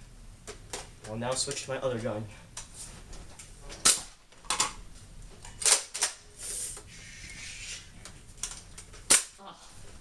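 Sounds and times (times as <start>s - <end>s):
brief hiss: 6.4s - 7.9s
sharp snap: 9.1s - 9.4s.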